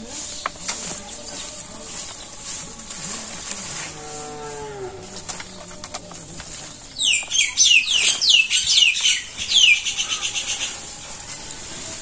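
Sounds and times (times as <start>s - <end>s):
bird calling with falling notes: 6.9s - 11.1s.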